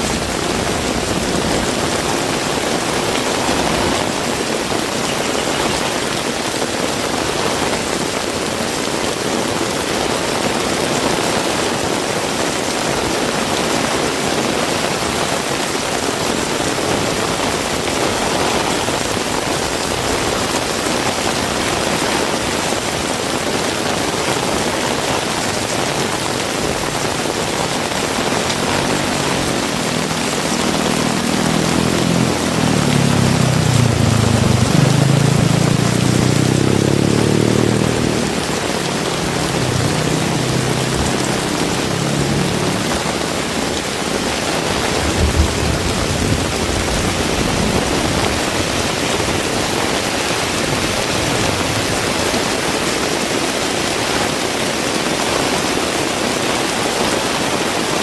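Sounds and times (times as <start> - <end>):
heavy rain falling: 0.0 - 58.0
vehicle engine hum: 25.6 - 52.6.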